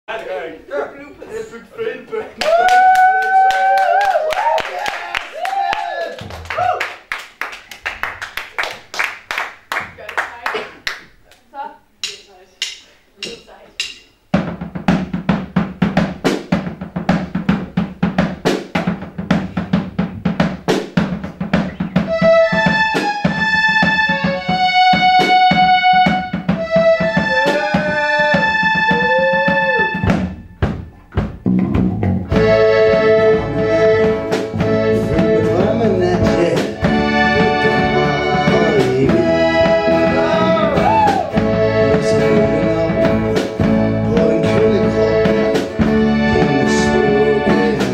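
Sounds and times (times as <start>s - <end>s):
drum kit beat: 6.2s - 11.2s, 11.8s - 47.9s
band chords and bass: 14.3s - 47.9s
sliding melody line: 21.7s - 30.7s, 31.5s - 47.9s.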